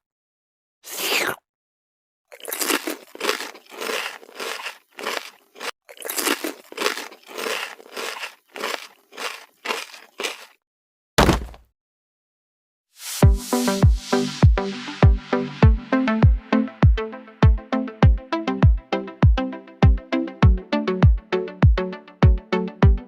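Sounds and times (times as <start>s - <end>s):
heavy thump: 11.2s - 11.6s.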